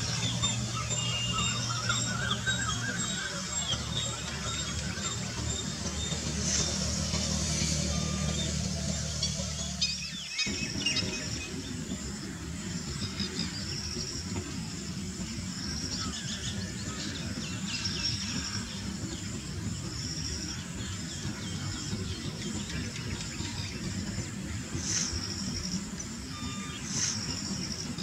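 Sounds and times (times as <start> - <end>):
bird trills: 0.0 - 11.8
bird chirps: 0.0 - 11.9
steady low rumble: 0.0 - 28.0.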